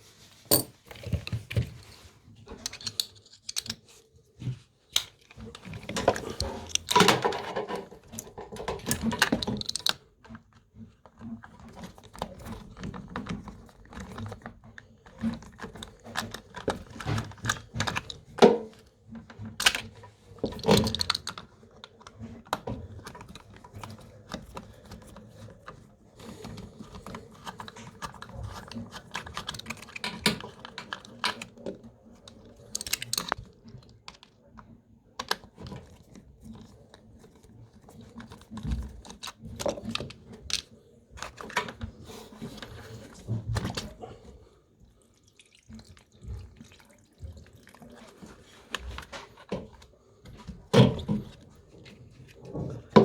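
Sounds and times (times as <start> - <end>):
clicking and rattling of parts: 0.5 - 44.4, 47.9 - 53.0.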